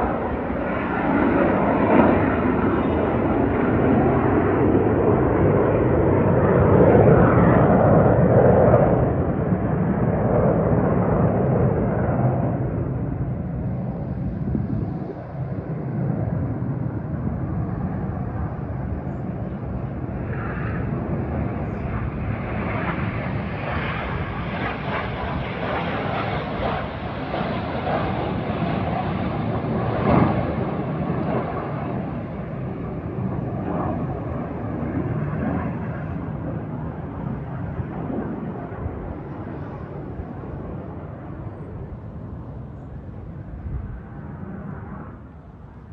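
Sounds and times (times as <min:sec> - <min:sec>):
jet aircraft flying past: 0:00.0 - 0:45.9.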